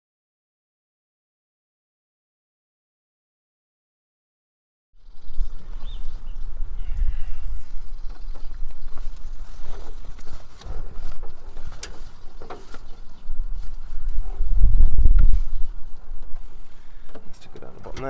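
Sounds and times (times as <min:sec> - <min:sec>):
bird chirp: 0:05.0 - 0:18.0
low rumble on microphone: 0:05.0 - 0:18.0
light clicks and knocks: 0:08.1 - 0:13.8.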